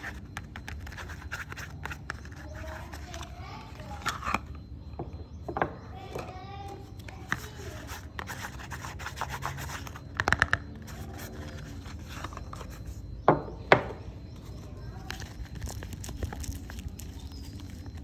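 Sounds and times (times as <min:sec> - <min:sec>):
soap rubbing and scraping: 0:00.0 - 0:04.6, 0:14.4 - 0:18.0.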